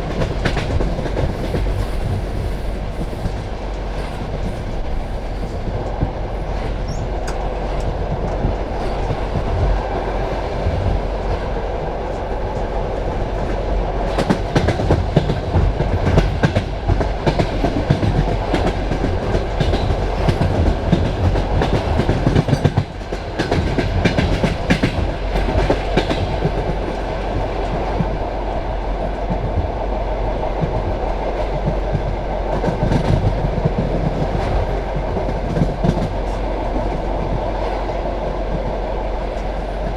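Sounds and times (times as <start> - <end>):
train carriage rumbling on track: 0.0 - 39.9
wheels clacking over rail joints: 13.4 - 28.2.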